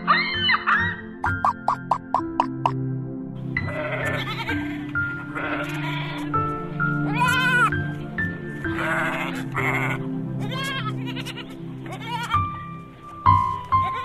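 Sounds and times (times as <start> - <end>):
background music with held tones: 0.0 - 14.0
goat bleating: 3.6 - 7.7, 8.6 - 12.5, 13.8 - 14.0.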